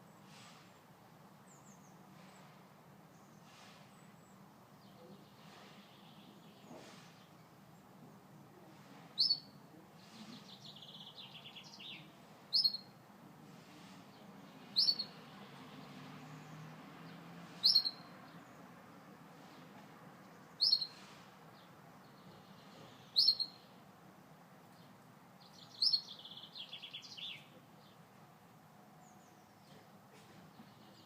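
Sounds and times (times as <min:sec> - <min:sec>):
canary chirping: 0:09.2 - 0:09.6, 0:10.6 - 0:12.9, 0:14.7 - 0:15.3, 0:17.5 - 0:18.2, 0:20.6 - 0:21.0, 0:22.5 - 0:23.7, 0:25.5 - 0:27.5
canary trill: 0:14.7 - 0:15.2, 0:17.6 - 0:18.1, 0:23.2 - 0:23.6.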